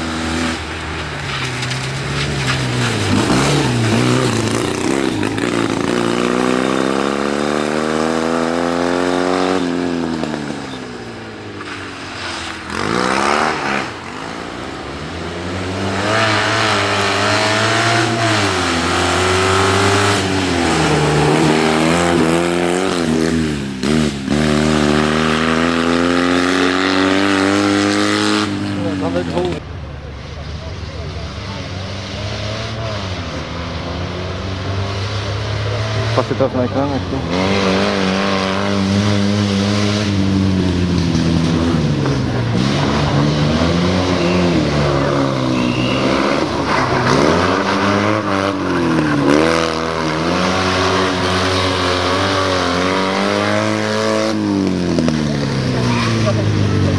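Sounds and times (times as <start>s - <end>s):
rally car engine revving: 0.0s - 56.9s.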